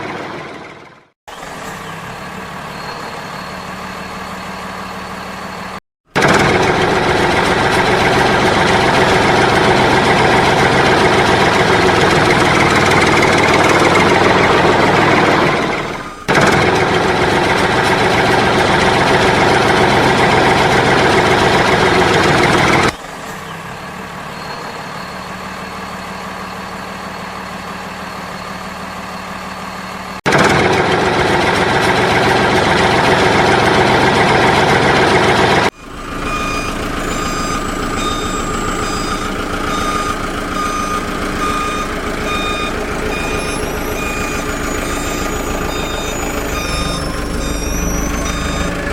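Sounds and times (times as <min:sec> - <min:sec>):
truck engine: 0:00.0 - 0:48.9
electronic reversing beeps: 0:35.8 - 0:48.9.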